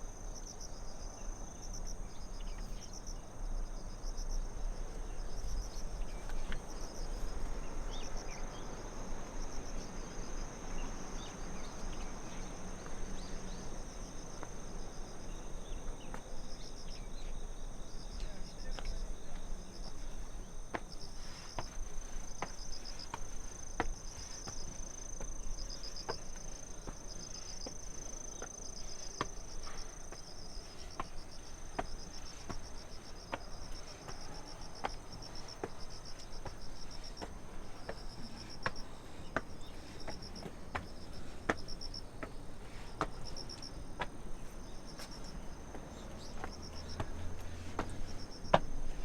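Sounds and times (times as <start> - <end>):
crickets chirping: 0.0 - 49.0
footsteps walking: 19.4 - 49.0.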